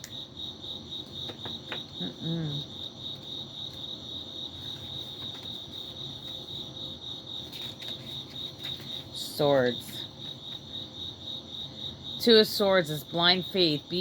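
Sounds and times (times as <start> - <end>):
cricket chirping: 0.0 - 14.0.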